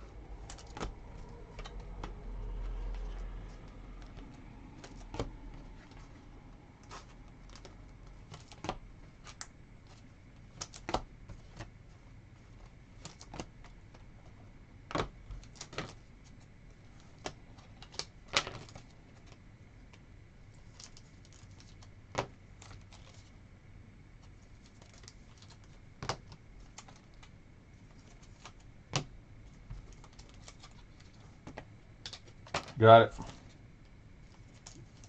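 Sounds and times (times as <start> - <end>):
trading cards and packaging clicking: 0.3 - 6.1.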